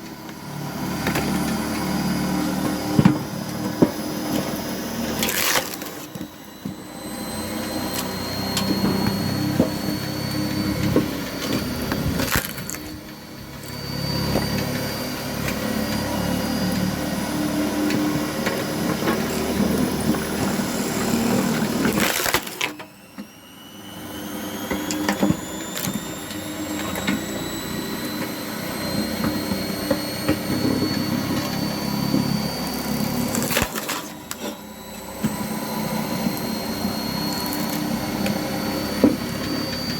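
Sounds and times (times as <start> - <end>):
electric motor whining: 0.0 - 39.9
wood cracking and crushing: 1.0 - 6.3, 10.8 - 13.0, 18.0 - 22.9, 32.9 - 34.6.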